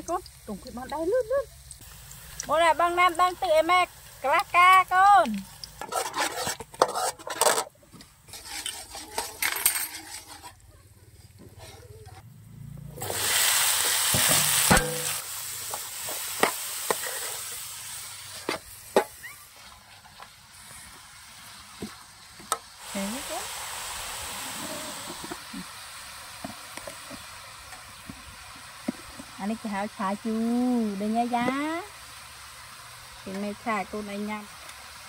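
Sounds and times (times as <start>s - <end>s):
food sizzling in hot oil: 0.0s - 10.7s, 12.8s - 35.0s
metal spatula scraping a wok: 5.8s - 12.2s, 13.0s - 20.9s.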